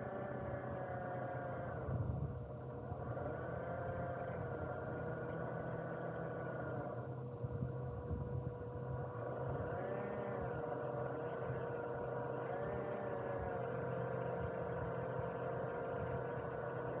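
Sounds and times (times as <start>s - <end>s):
small electric motor whining: 9.1s - 17.0s.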